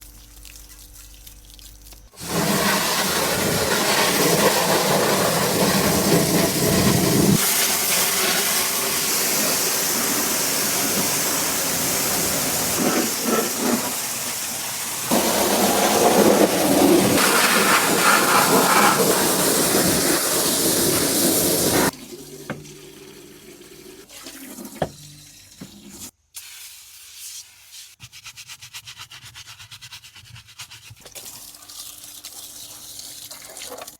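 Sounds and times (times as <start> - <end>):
pressure washer spraying water: 2.2 - 21.9.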